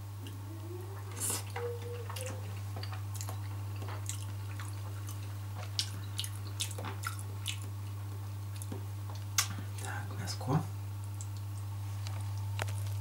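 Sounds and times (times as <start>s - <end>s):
steady low hum: 0.0s - 13.0s
wet chewing and lip smacks: 1.1s - 10.0s, 11.2s - 13.0s.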